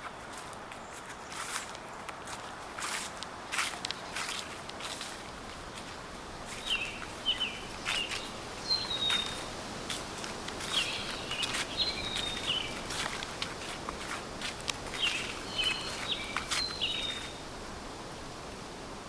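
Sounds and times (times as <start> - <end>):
footsteps crunching dry leaves: 0.0 - 17.6
small bird chirping: 6.6 - 9.5, 10.6 - 13.1, 15.0 - 17.4.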